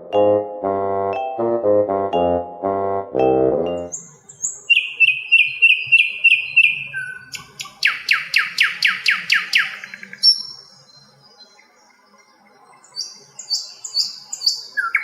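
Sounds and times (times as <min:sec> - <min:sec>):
flycatcher singing: 0:03.8 - 0:15.0.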